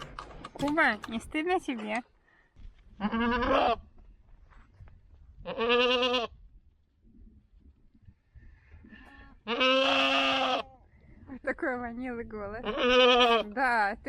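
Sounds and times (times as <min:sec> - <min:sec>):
goat bleating: 0:03.0 - 0:03.8, 0:05.4 - 0:06.3, 0:09.3 - 0:10.7, 0:12.6 - 0:13.5.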